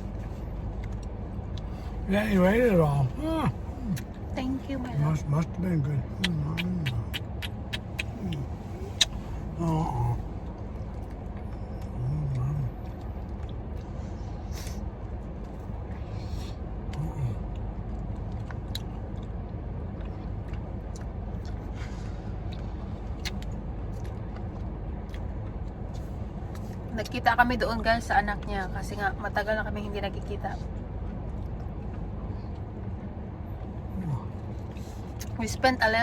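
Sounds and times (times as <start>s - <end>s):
car engine idling: 0.0s - 19.2s
short bits of voice: 6.2s - 7.2s.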